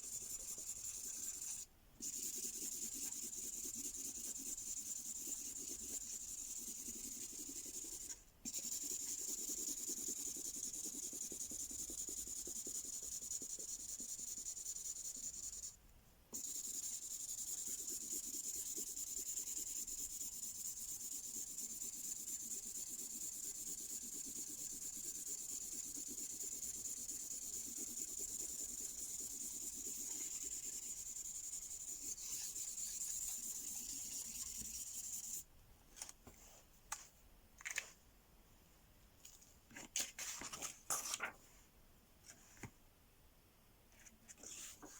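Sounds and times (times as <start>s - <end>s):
marker scratching on paper: 0.0s - 15.8s, 16.4s - 35.4s.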